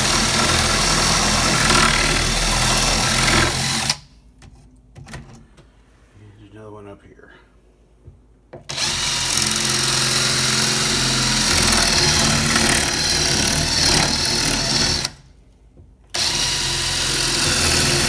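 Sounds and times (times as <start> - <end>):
power tool cutting plywood: 0.0 - 4.0, 8.7 - 15.2, 16.2 - 18.0.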